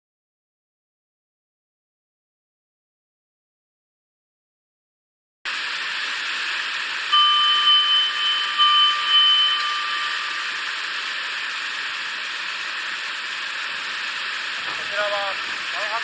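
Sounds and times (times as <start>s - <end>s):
steady high tones: 5.8s - 16.0s.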